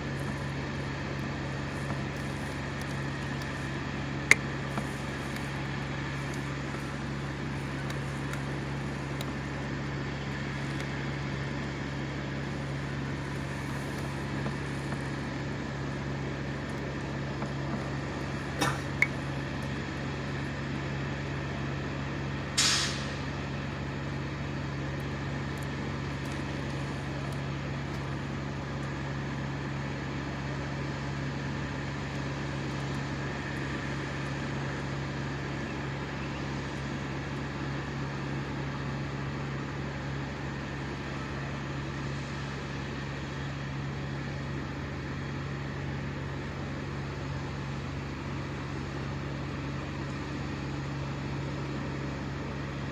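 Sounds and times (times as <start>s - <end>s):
engine droning at high speed: 0.0s - 52.9s
short sharp hiss: 22.6s - 23.2s.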